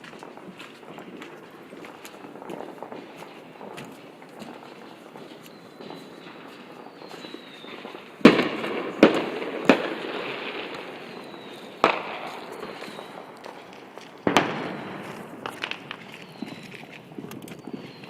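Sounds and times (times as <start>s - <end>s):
fireworks exploding: 0.0s - 18.0s.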